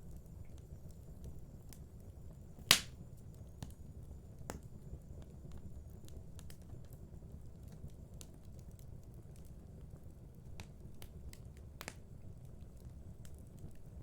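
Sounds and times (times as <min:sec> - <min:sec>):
wood fire crackling: 0:00.1 - 0:03.8, 0:05.2 - 0:14.0
loud pop from fire: 0:02.6 - 0:03.0.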